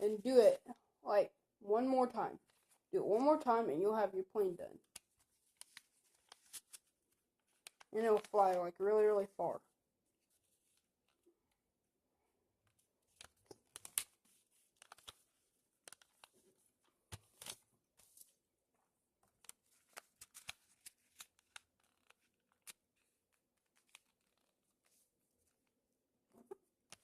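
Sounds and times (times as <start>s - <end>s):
paper being folded and creased: 2.4s - 2.8s, 4.8s - 8.6s, 12.6s - 18.5s, 19.2s - 25.8s.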